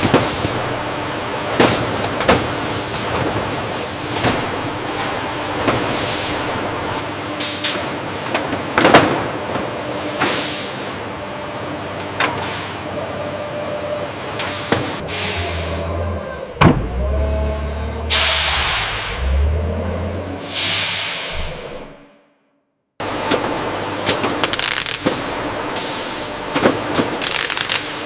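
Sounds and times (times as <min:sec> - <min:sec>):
factory machinery din: 0:14.1 - 0:22.2.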